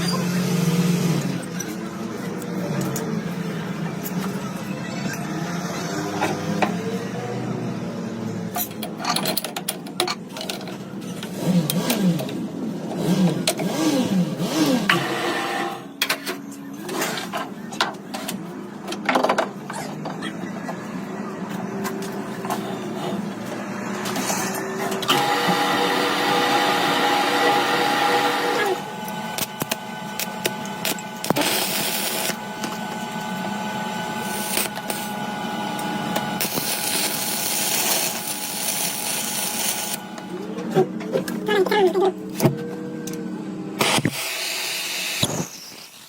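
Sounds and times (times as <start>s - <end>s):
machine hum: 10.4s - 45.5s
power tool whining: 24.1s - 40.4s, 43.8s - 46.0s.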